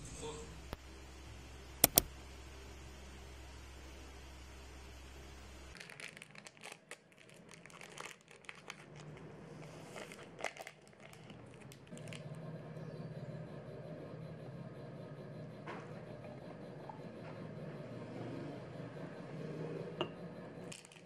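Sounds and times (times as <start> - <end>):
wrapper crinkling and clicking: 5.8 - 9.3, 9.9 - 12.2.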